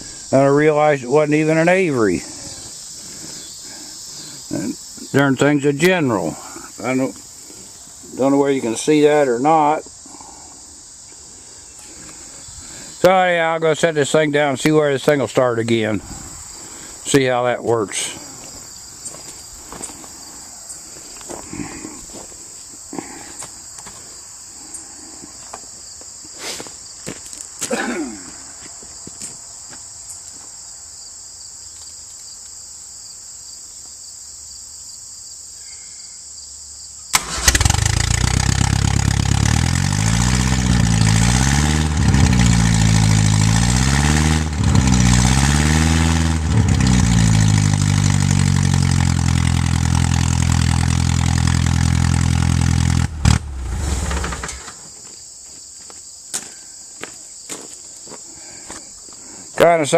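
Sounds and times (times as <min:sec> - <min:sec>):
crickets chirping: 0:00.0 - 0:37.6, 0:53.8 - 0:59.9
tractor engine running and revving: 0:37.2 - 0:54.8.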